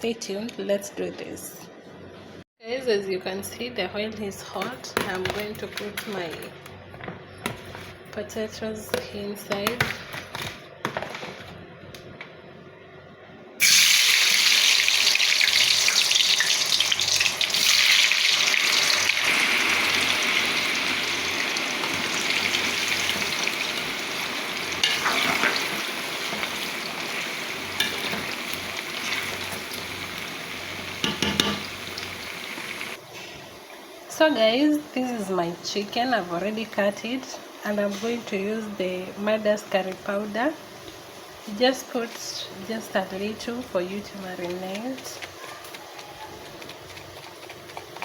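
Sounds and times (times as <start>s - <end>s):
potatoes sizzling in hot oil: 13.6s - 33.0s.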